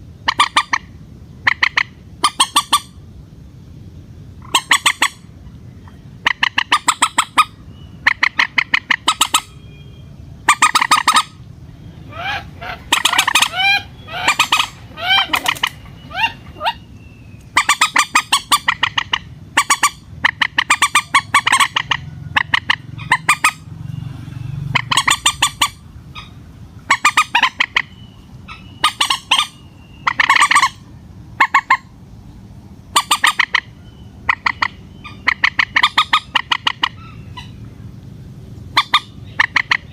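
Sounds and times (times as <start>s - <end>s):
moorhen harsh pulsed calls: 0.2s - 3.1s, 4.4s - 32.0s, 32.9s - 37.9s, 38.7s - 39.9s
bird gliding notes: 4.4s - 30.8s.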